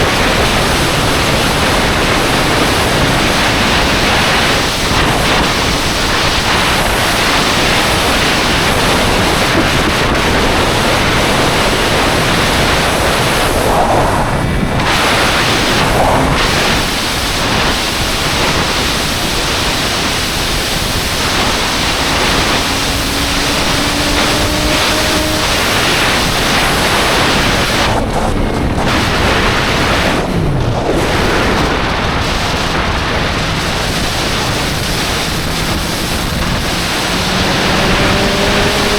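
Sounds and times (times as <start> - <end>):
wind rush over microphone: 0.0 - 38.9
faint motorcycle engine: 20.0 - 31.0.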